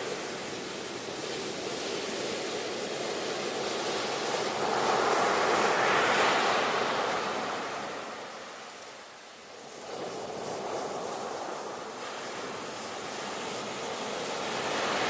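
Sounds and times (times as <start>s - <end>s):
ocean wave breaking: 3.8s - 8.8s, 9.6s - 15.0s.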